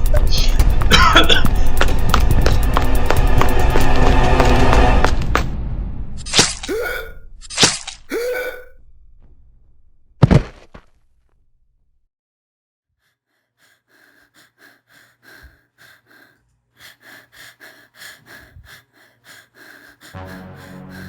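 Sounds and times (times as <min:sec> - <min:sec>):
low music: 0:00.0 - 0:05.5, 0:20.2 - 0:21.0
person panting: 0:00.4 - 0:05.0, 0:08.1 - 0:08.7, 0:13.1 - 0:21.0.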